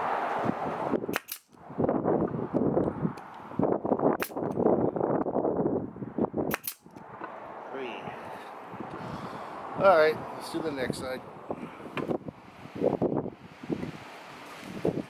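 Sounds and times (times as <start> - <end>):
nail gun firing into wood: 1.1 - 1.6, 4.2 - 4.6, 6.5 - 7.0.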